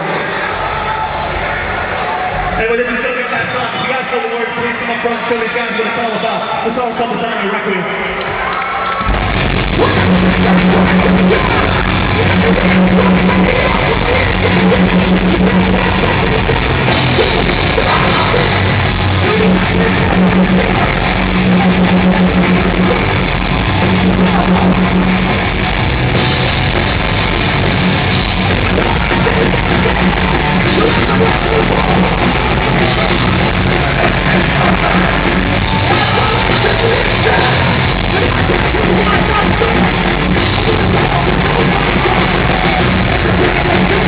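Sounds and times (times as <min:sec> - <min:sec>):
heavy rock band playing live: 0:09.0 - 0:44.0.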